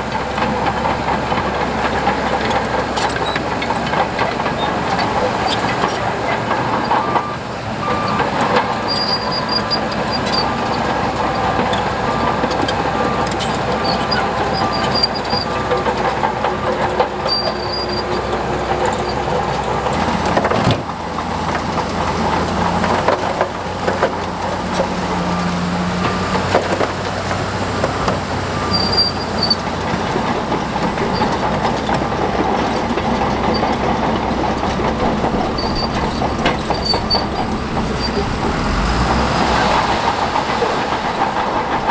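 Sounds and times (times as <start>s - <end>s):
diesel engine running: 0.0s - 41.9s
steel tracks clanking and squeaking: 0.0s - 41.9s.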